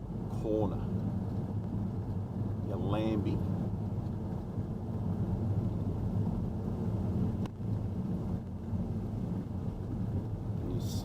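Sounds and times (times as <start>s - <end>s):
engine and tyre rumble: 0.0s - 11.0s.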